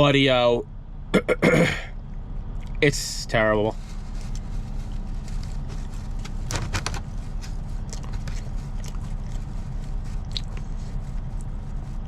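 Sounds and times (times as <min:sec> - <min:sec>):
person chewing food: 0:07.8 - 0:09.5, 0:10.2 - 0:10.8.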